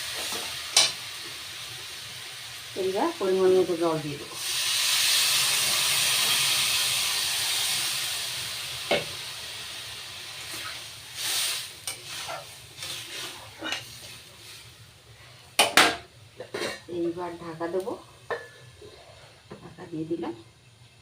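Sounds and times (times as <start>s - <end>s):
water hissing in hot pot: 0.0s - 15.4s.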